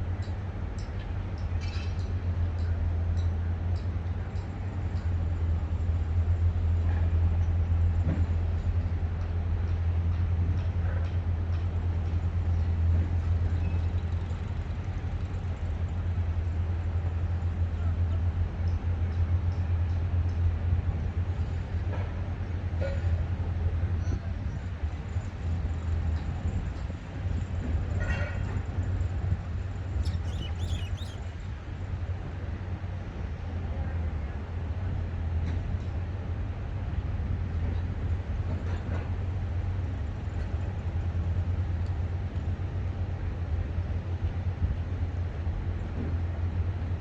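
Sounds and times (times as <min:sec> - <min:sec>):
distant traffic and construction: 0:00.0 - 0:47.0
low city rumble: 0:00.0 - 0:47.0
bird chirp: 0:30.0 - 0:31.4.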